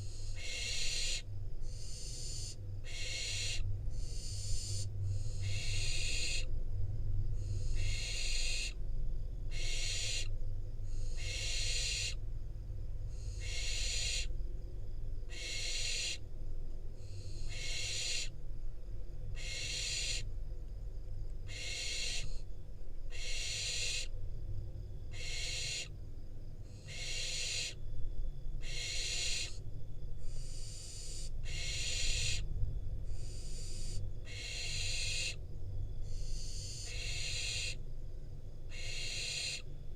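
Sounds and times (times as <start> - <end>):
owl chicks hissing begging calls: 0.0 - 6.5, 7.4 - 8.8, 9.5 - 10.3, 10.9 - 12.2, 13.2 - 14.3, 15.3 - 16.2, 17.0 - 18.3, 19.4 - 20.3, 21.5 - 22.4, 23.1 - 24.1, 25.1 - 25.9, 26.7 - 27.8, 28.6 - 29.6, 30.2 - 32.4, 33.1 - 35.4, 36.0 - 37.8, 38.7 - 39.7.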